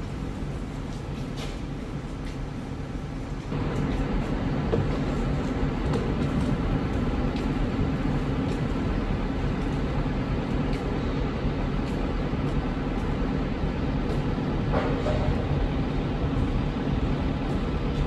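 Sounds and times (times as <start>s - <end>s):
train rumbling: 0.0s - 18.0s.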